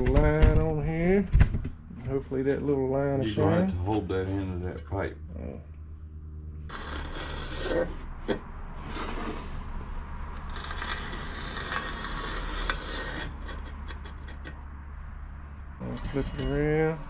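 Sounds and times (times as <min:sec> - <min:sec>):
scribe scraping along metal pipe: 0:06.6 - 0:14.7.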